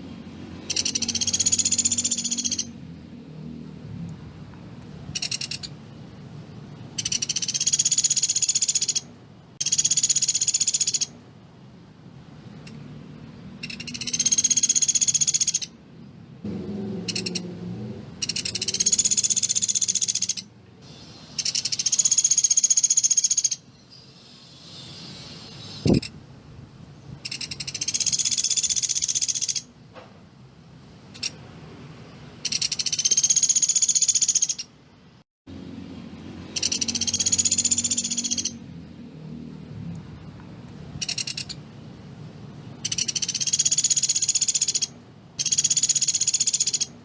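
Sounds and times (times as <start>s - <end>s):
woodpecker rapid trills: 0.6s - 2.8s, 5.2s - 5.7s, 7.0s - 11.1s, 13.6s - 15.7s, 17.0s - 17.5s, 18.2s - 20.5s, 21.4s - 23.6s, 27.2s - 29.7s, 32.4s - 34.7s, 36.4s - 38.6s, 41.0s - 41.6s, 42.8s - 47.0s.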